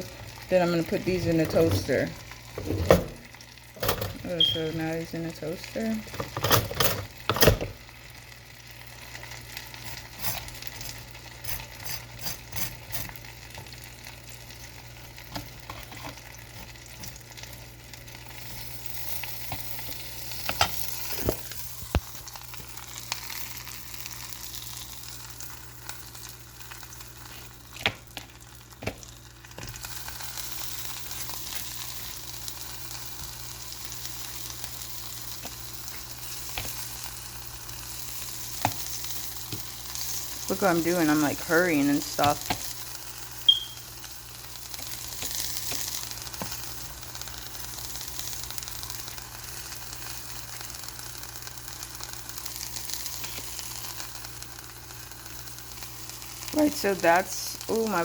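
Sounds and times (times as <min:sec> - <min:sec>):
sausages sizzling in frying pan: 0:00.0 - 0:58.0.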